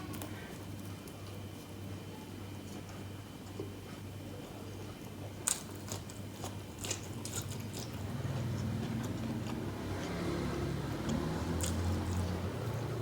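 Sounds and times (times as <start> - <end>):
chewing food: 4.8 - 13.0
food crunching: 5.0 - 13.0.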